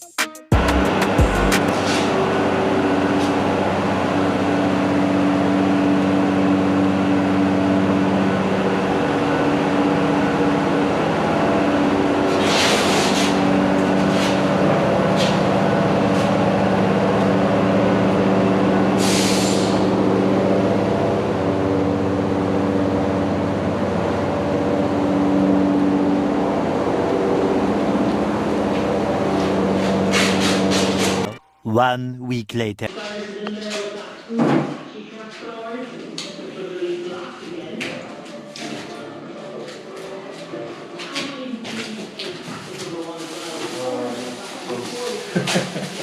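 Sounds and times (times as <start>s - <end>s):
music of long held chords: 0.0s - 1.8s.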